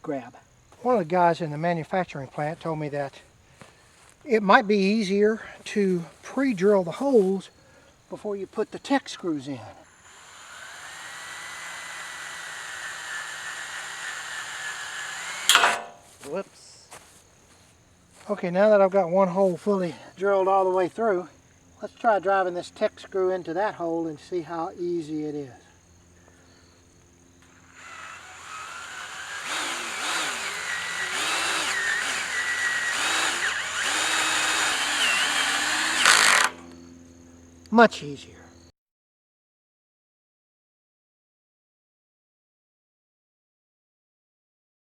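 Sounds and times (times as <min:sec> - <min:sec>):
electric drill whining: 0:09.8 - 0:16.3, 0:27.0 - 0:37.0.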